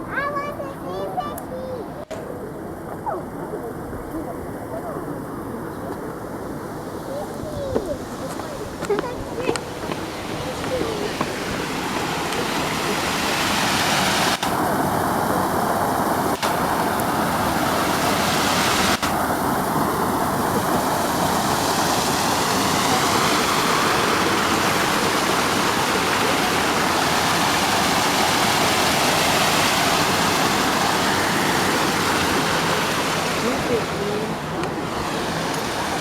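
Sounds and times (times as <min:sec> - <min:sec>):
waterfall into pond: 0:09.8 - 0:36.0.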